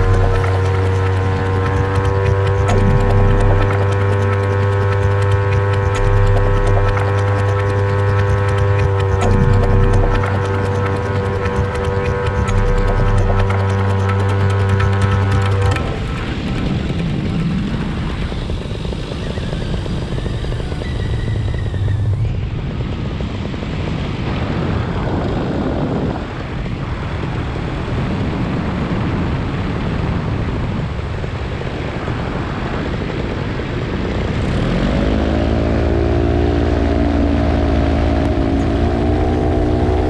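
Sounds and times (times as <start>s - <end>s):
pitched drone with overtones: 0.0s - 22.7s, 34.6s - 40.0s
wind rush from model aircraft: 14.6s - 40.0s.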